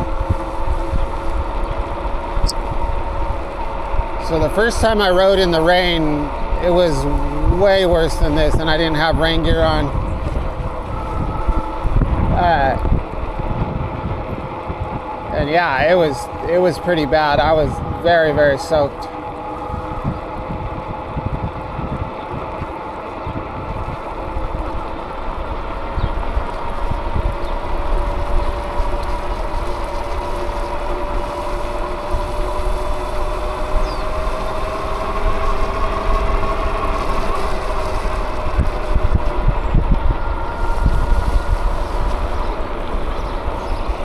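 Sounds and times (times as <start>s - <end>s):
vehicle motor whine: 0.0s - 44.0s
wind buffeting microphone: 0.0s - 44.0s.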